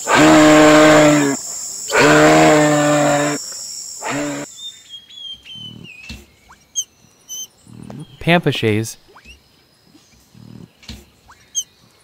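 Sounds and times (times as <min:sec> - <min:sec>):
moose calling: 0:00.0 - 0:04.5
faint bird chirps: 0:01.1 - 0:08.3, 0:09.0 - 0:12.0.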